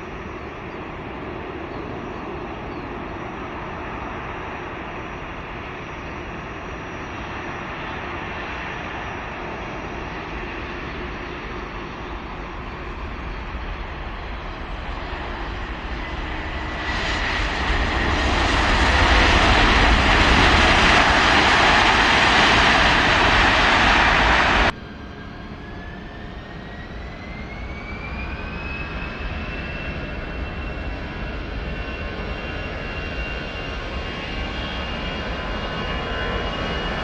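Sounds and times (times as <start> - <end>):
aircraft engine rushing: 0.0 - 37.0.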